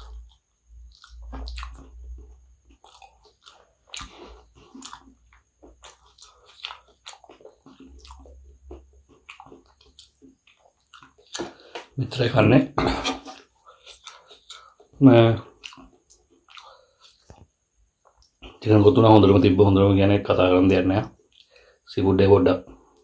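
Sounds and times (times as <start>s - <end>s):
wet crunchy chewing: 0.0s - 11.9s, 13.1s - 18.7s.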